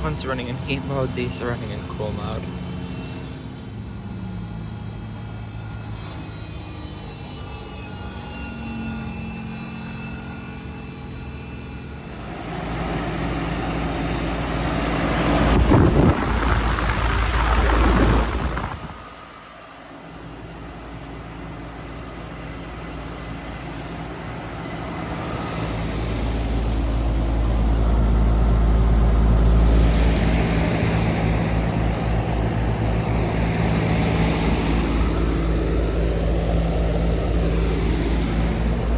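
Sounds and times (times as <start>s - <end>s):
heat pump units humming: 0.0s - 38.9s
loud rushing rumble: 12.1s - 19.4s, 27.0s - 38.9s.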